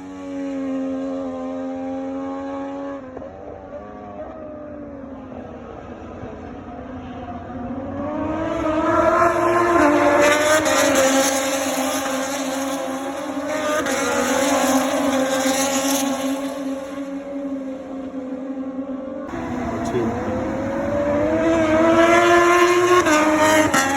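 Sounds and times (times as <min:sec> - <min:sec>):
racing motorcycles passing: 0:08.3 - 0:17.8, 0:19.3 - 0:23.9.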